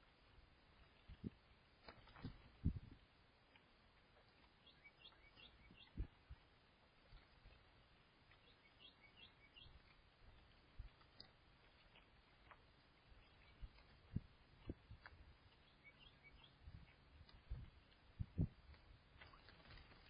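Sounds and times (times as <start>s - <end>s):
dull low thumps: 2.2s - 3.0s, 16.6s - 18.8s
faint bird chirping: 3.7s - 20.0s.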